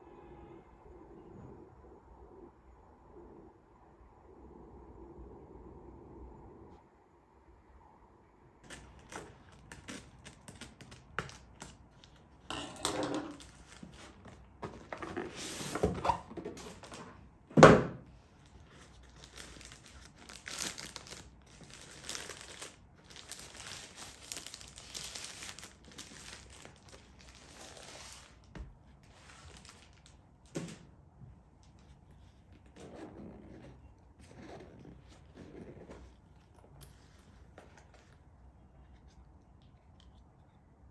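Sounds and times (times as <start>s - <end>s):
cardboard and plastic crinkling: 8.6s - 17.2s, 17.8s - 30.9s.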